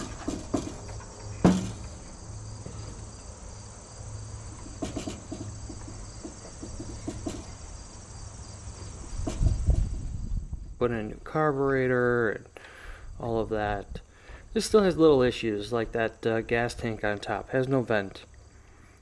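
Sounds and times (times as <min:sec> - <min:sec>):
insects chirring: 0:00.0 - 0:19.0
sharp knock: 0:01.4 - 0:01.9, 0:04.7 - 0:05.8.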